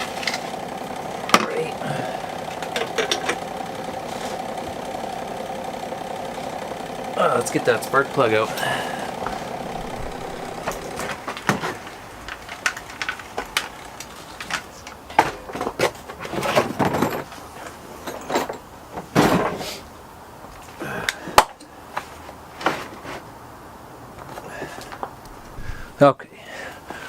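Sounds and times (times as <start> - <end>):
clicks and knocks of tools: 2.6 - 3.4.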